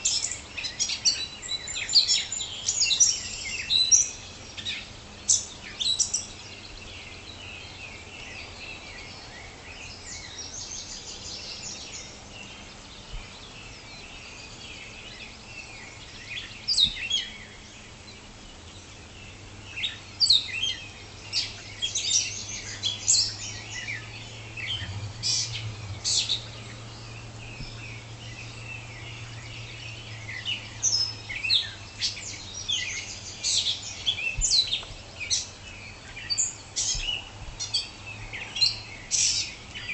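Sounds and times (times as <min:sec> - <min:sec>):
songbirds chirping and trilling: 0:00.0 - 0:39.9
faint low hum: 0:20.9 - 0:36.3.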